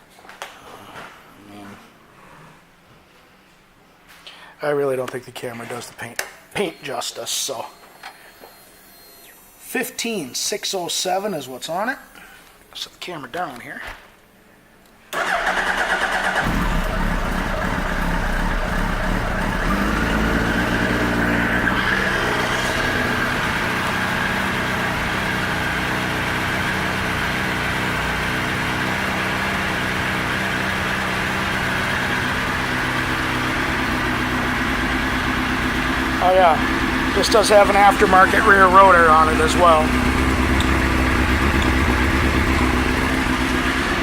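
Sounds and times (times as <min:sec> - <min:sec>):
motorcycle engine starting and idling: 0:15.2 - 0:44.0.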